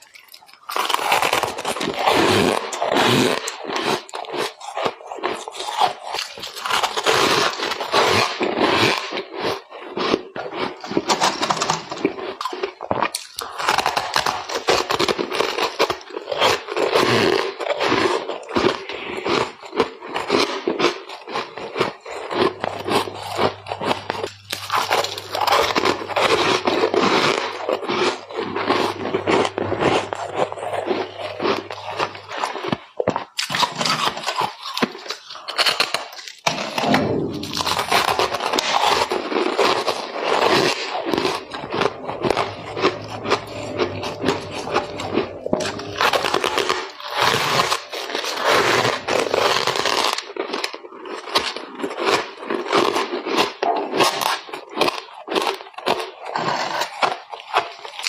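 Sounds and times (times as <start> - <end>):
chewing crunchy ice: 0.0 - 36.8, 37.4 - 58.0.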